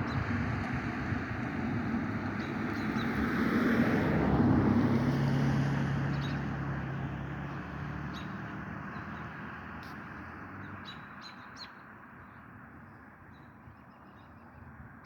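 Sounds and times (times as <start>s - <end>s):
vehicle engine passing by: 0.0s - 10.9s.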